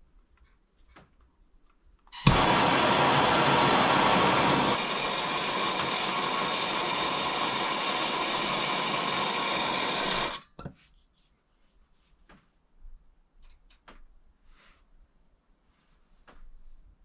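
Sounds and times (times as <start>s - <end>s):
blowtorch flame hissing: 2.2s - 10.4s
faint clicks and knocks: 13.3s - 14.2s.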